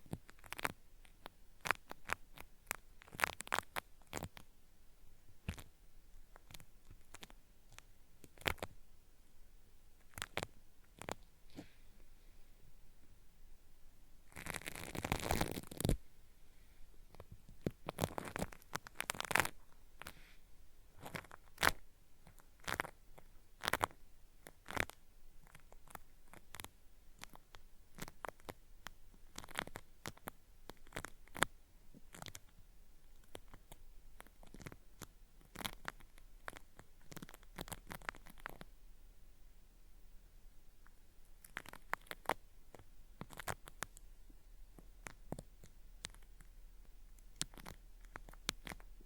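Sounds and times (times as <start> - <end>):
cotton swab rubbing microphone: 14.2 - 16.0.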